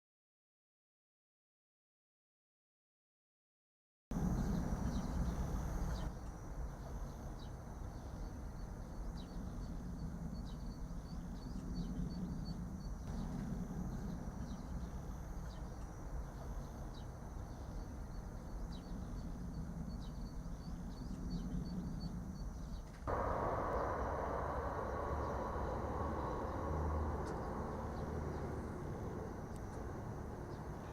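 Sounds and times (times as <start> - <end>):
steady low rumble: 23.1 - 30.9
thin high hum: 23.1 - 30.9.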